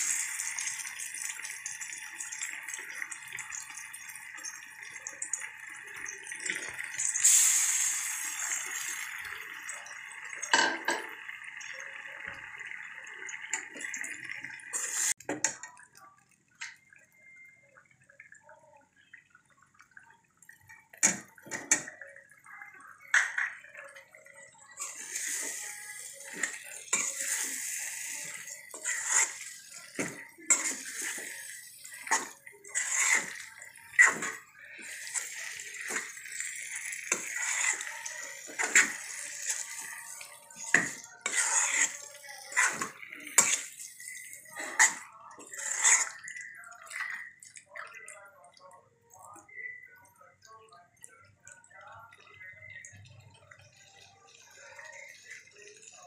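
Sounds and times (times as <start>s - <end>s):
chicken sizzling in a pan: 0.0s - 15.2s, 24.7s - 47.2s
metal ladle scraping a pan: 24.8s - 46.3s.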